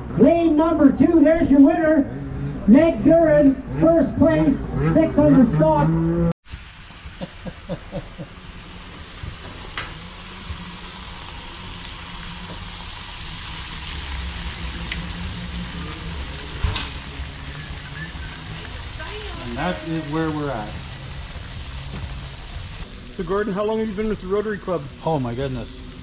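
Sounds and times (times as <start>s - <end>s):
food sizzling on a griddle: 6.4s - 26.0s.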